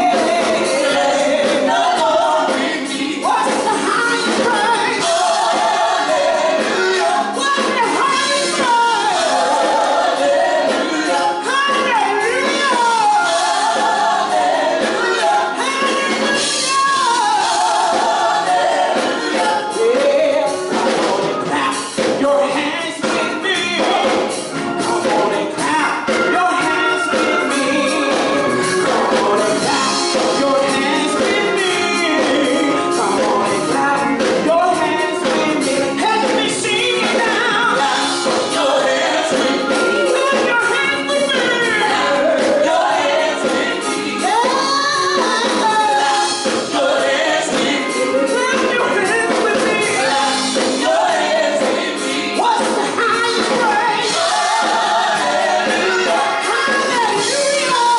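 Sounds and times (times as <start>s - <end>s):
gospel choir singing: 0.0s - 57.9s
instrumental accompaniment with percussion: 0.0s - 57.9s.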